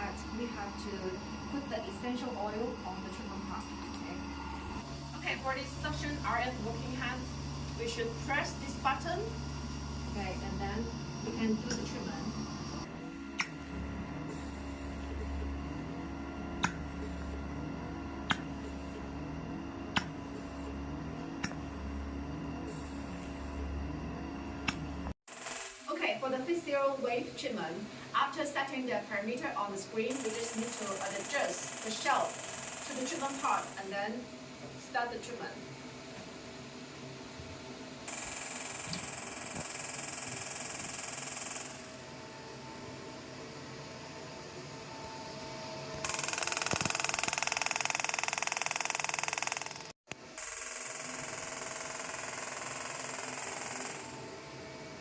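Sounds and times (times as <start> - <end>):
faint machine hum: 0.0 - 25.2, 25.8 - 55.0
beauty machine handpiece buzzing: 0.0 - 25.9, 30.1 - 34.0, 38.0 - 42.1, 45.9 - 54.6
sharp machine clicks: 11.5 - 12.1, 24.6 - 25.9, 30.1 - 33.9, 38.1 - 41.9, 46.0 - 54.3.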